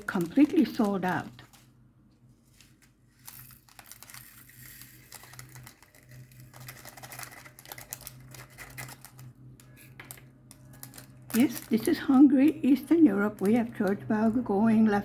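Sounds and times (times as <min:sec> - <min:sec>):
faint low hum: 0:00.0 - 0:15.0
small plastic crystals clicking: 0:03.2 - 0:14.1.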